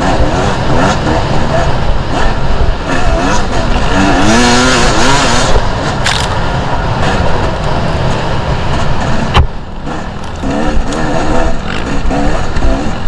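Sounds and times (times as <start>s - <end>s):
two-stroke motorcycle engine revving: 0.0s - 13.0s.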